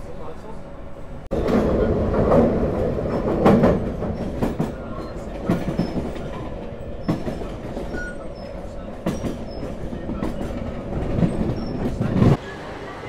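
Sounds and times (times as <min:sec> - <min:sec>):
train rumbling on rails: 0:00.0 - 0:13.0
wheels clattering over rail joints: 0:01.3 - 0:12.4.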